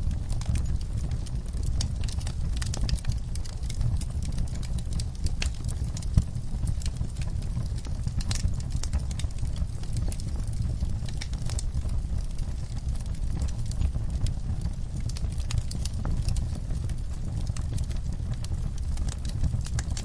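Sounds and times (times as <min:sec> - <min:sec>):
log fire crackling: 0:00.0 - 0:20.0
low rumble of flames: 0:00.0 - 0:20.0
sharp pops and snaps: 0:01.8 - 0:11.6.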